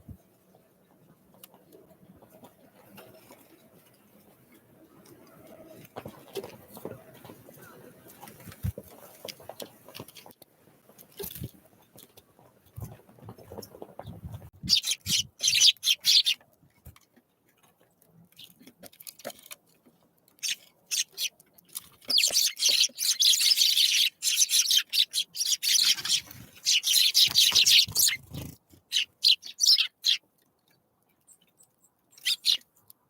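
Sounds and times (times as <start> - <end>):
small birds chirping: 12.8 - 16.4, 20.4 - 32.8.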